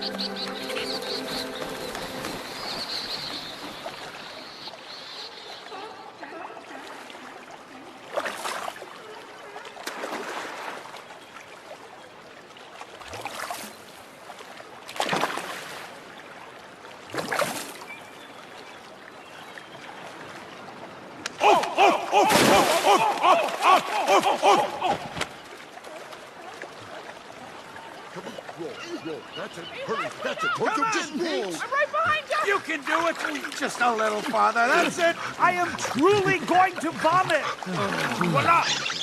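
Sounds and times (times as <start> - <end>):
logo music: 0.0 - 2.9
moving water: 0.0 - 39.0
loud swooshing splashes: 21.5 - 25.3.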